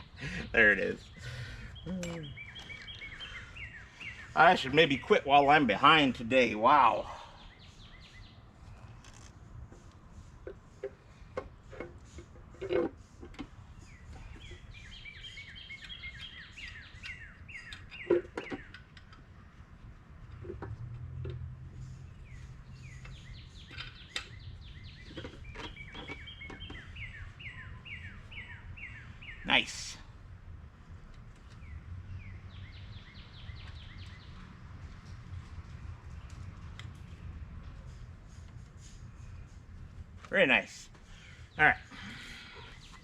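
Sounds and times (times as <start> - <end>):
bird singing sliding notes: 13.1 - 18.9.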